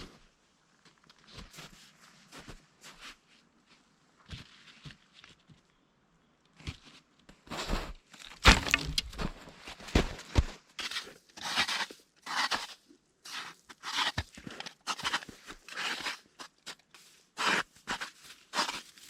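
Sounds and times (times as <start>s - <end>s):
cracking and crunching: 8.1s - 10.6s.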